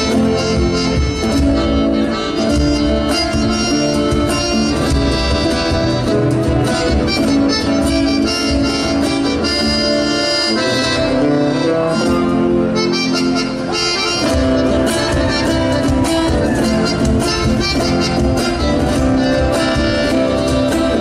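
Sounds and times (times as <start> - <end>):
accordion: 0.0 - 21.0
folk band playing: 0.0 - 21.0.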